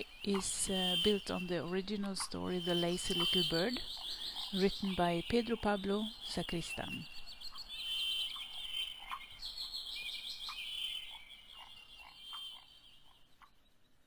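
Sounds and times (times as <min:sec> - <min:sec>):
small birds chirping and trilling: 0:00.0 - 0:14.0.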